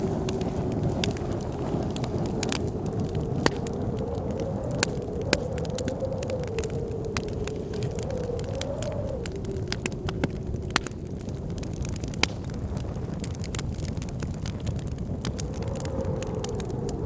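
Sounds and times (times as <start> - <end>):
howling blizzard wind: 0.0 - 17.0
wood fire crackling and popping: 0.0 - 17.0.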